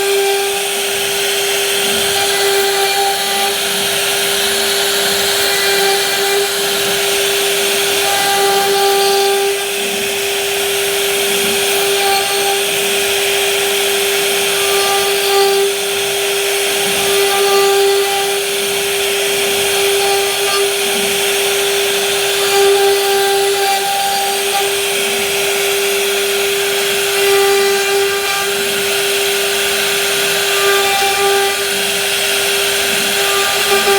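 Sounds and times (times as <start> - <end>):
bit cutting wood: 0.0 - 33.9
router spindle high whine: 0.0 - 33.9.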